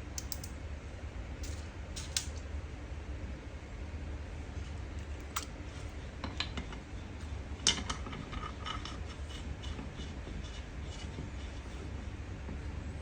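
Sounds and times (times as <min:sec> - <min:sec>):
metal tools clicking: 0:00.2 - 0:00.6, 0:01.4 - 0:02.4.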